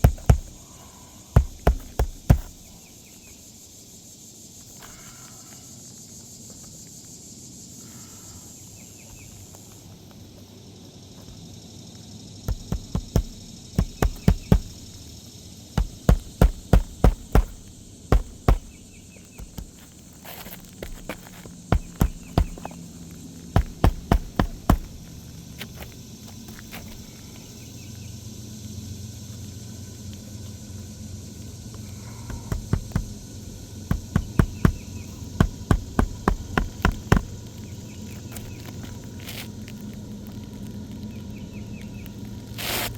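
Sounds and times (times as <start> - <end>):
hammer striking nails: 0.0 - 0.6, 1.4 - 2.6, 12.5 - 15.0, 15.8 - 19.8, 20.8 - 22.8, 23.6 - 25.1, 32.3 - 33.2, 33.9 - 37.4.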